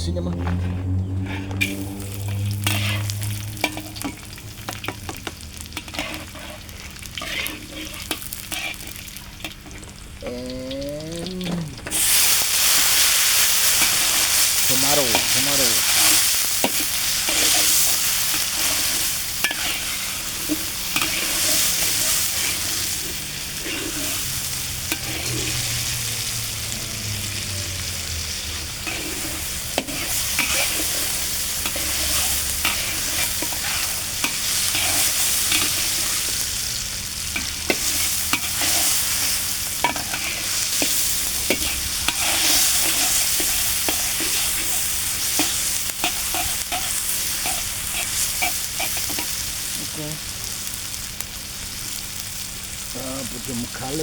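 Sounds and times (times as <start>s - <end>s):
food sizzling in a frying pan: 0.6s - 54.0s
utensil scraping a pan: 1.4s - 9.8s, 15.0s - 25.8s, 28.8s - 36.3s, 37.3s - 49.4s.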